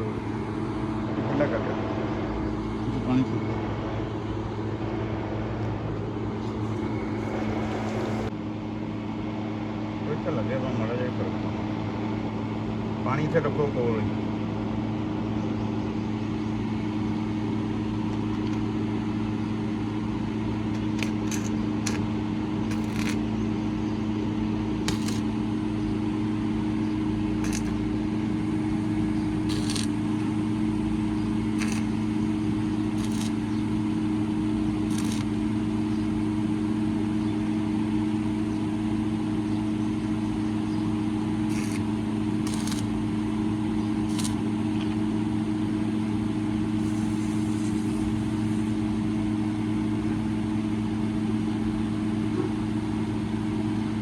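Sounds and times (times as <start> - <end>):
car engine idling: 0.0 - 9.9.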